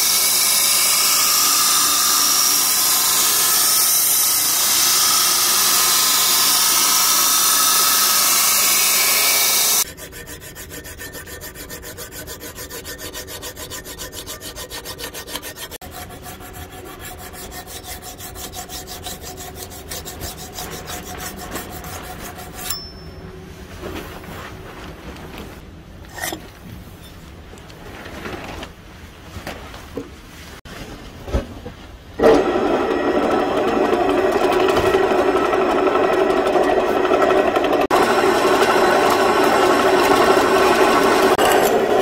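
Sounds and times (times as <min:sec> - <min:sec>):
belt grinder grinding steel: 0:00.0 - 0:23.1, 0:32.2 - 0:42.0
hand file rasping: 0:00.6 - 0:23.0.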